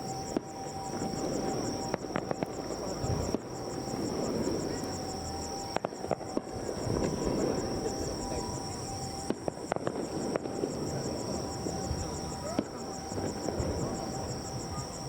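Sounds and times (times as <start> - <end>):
crickets chirping: 0.0 - 15.0
fireworks popping: 0.0 - 15.0
crowd chatter: 3.2 - 15.0.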